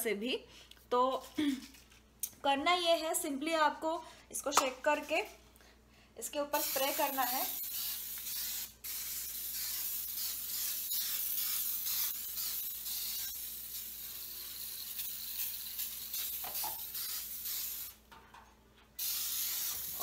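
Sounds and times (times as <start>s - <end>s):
aerosol can spraying: 6.6s - 18.0s, 19.0s - 20.0s.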